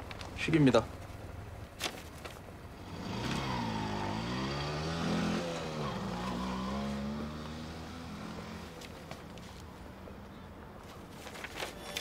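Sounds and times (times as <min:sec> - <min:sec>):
car engine accelerating: 0:02.8 - 0:08.8.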